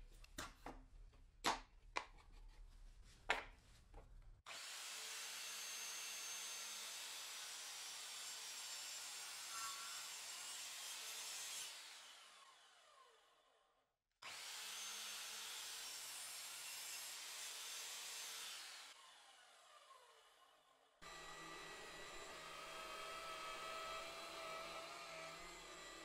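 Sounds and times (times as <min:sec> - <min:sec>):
electric power tool running: 0:21.0 - 0:26.0.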